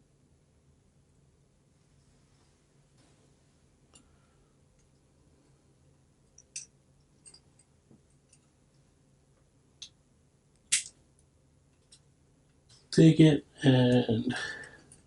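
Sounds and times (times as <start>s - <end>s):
sharp snip-like click: 10.7s - 11.0s.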